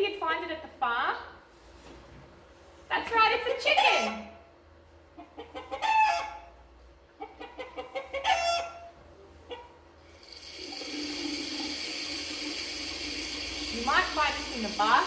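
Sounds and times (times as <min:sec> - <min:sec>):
chicken calling: 0:05.4 - 0:06.6, 0:07.2 - 0:08.9
tap water running: 0:10.0 - 0:15.0.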